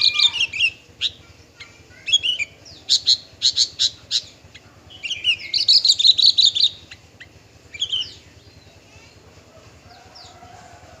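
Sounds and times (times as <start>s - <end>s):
lark singing high chirps: 0.0s - 8.6s.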